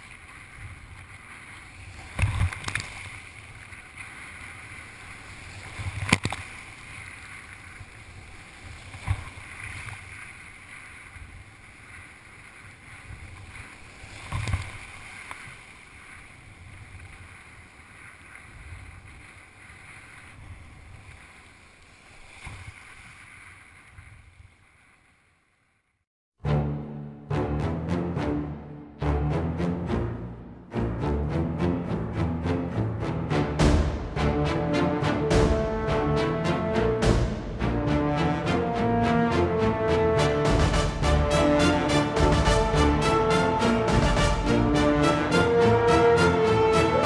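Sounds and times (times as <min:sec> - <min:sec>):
rush of water and wind: 0:00.0 - 0:24.8
music: 0:26.4 - 0:47.0
surf crashing: 0:33.1 - 0:47.0.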